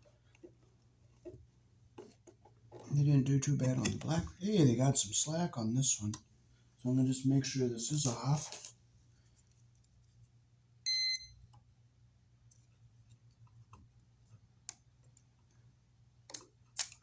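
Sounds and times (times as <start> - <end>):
short electronic beep: 10.9 - 11.3.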